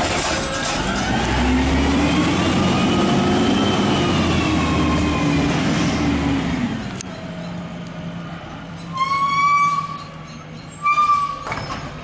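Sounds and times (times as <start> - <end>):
road and mechanical noise: 0.0 - 12.0
garbage truck engine revving: 0.7 - 6.8.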